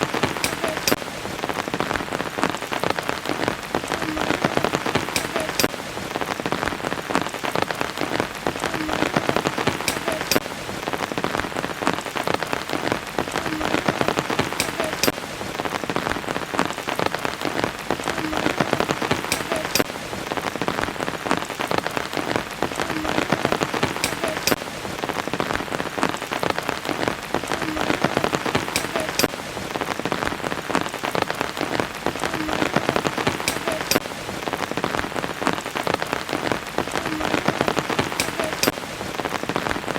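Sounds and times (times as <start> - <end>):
water drips: 0.0 - 1.4, 3.8 - 6.0, 8.6 - 10.8
steady rain patter: 0.0 - 39.9.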